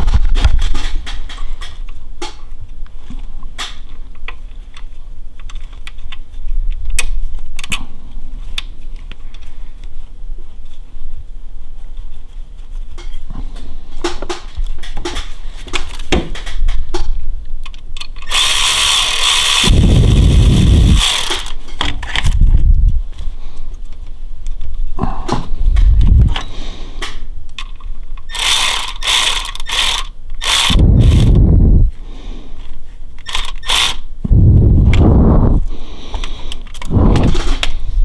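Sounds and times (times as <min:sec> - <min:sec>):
metal clicks of hand tools: 0:27.5 - 0:31.4, 0:33.2 - 0:34.1.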